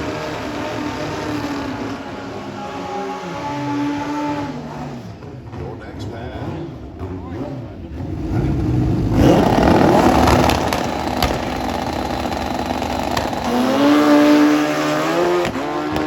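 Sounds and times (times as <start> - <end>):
motorcycle engine at full throttle: 0.0 - 5.6, 6.4 - 16.0
second engine rising in pitch: 8.0 - 16.0.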